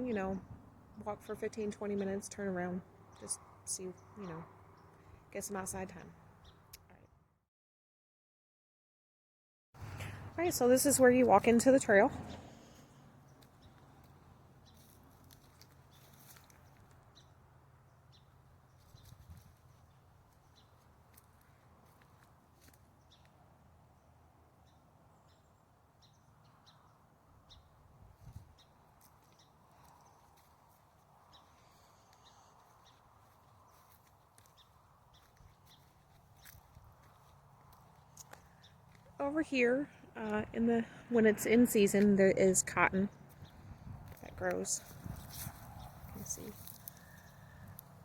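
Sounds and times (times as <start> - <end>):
faint outdoor ambience: 0.0 - 7.2, 9.8 - 48.0
footsteps on woodland trail: 12.6 - 17.4, 18.1 - 23.4, 28.2 - 39.2, 43.2 - 48.0.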